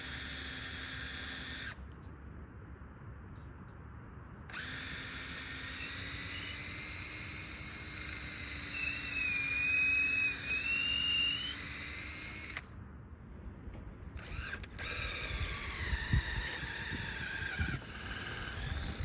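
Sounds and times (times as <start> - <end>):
electric drill whining: 0.0 - 1.8, 4.5 - 12.7, 14.2 - 19.0.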